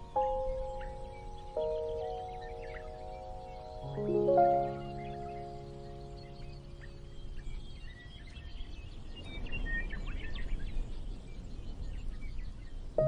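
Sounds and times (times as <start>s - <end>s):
calm music: 0.0s - 8.3s
birds chirping: 0.0s - 13.0s.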